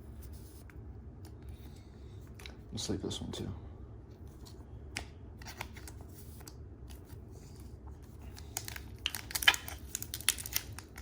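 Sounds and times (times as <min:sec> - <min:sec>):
plastic packaging crinkling: 0:08.3 - 0:11.0.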